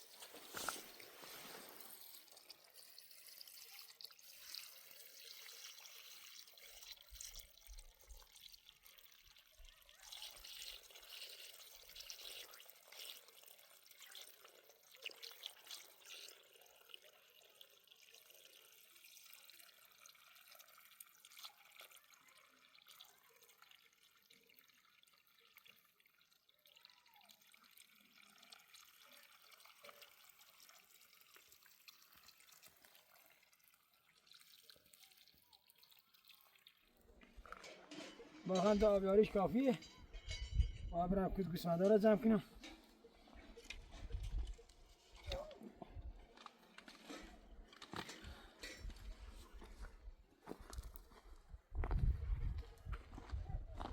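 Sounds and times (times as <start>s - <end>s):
small water splashes: 0.0s - 40.5s
water trickling and dripping on soil: 0.0s - 53.9s.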